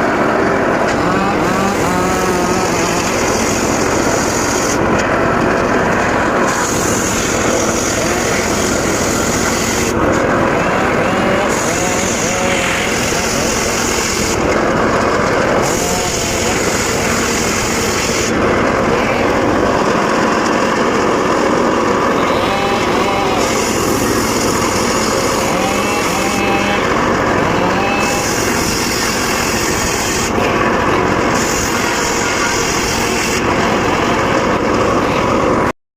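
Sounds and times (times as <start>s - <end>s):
circular saw cutting wood: 0.0s - 35.7s
saw blade hiss: 1.0s - 4.8s, 6.4s - 10.0s, 10.9s - 14.4s, 15.6s - 18.4s, 22.2s - 30.4s, 31.3s - 33.5s.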